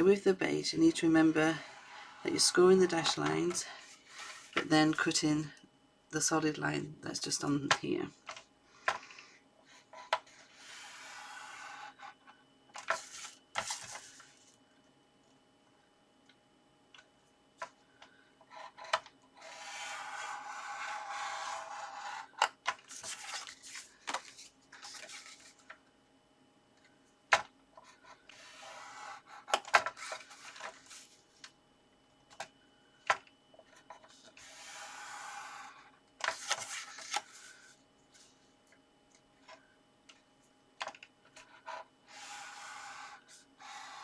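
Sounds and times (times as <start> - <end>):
scoring tool scraping cardstock: 1.4 - 2.5, 3.1 - 4.7, 9.8 - 12.2, 18.5 - 25.5, 27.9 - 31.2, 34.1 - 37.7, 41.4 - 44.0.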